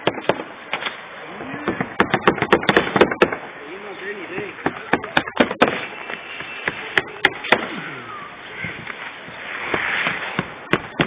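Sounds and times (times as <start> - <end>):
scraping and rustling: 8.6 - 10.7.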